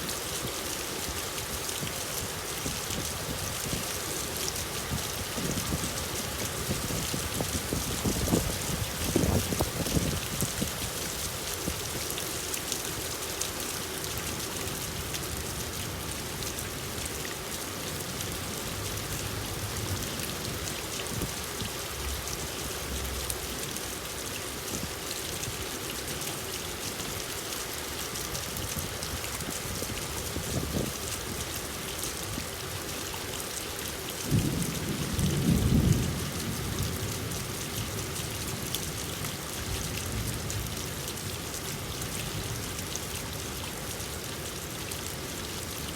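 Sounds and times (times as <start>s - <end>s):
steady rain: 0.0s - 45.9s
low rumble of thunder: 5.0s - 11.0s, 34.3s - 38.2s.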